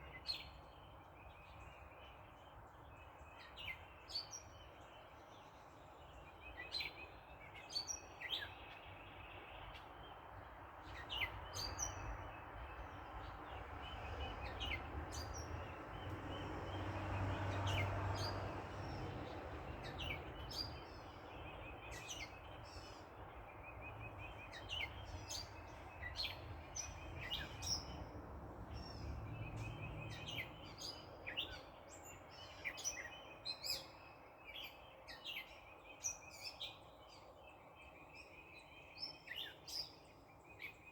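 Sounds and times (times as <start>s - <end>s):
songbirds chirping: 0.0s - 40.9s
distant traffic hum: 9.6s - 33.5s
car passing: 13.2s - 22.0s, 24.0s - 31.5s.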